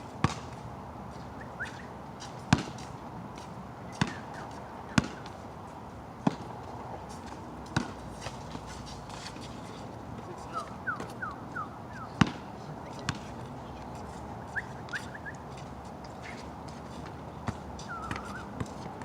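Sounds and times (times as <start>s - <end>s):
ball thudding: 12.2s - 12.4s.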